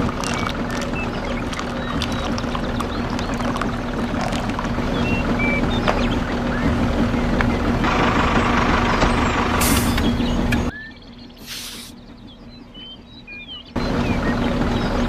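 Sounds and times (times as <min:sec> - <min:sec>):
birds chirping: 0:00.0 - 0:15.0
brief hiss: 0:11.4 - 0:11.9.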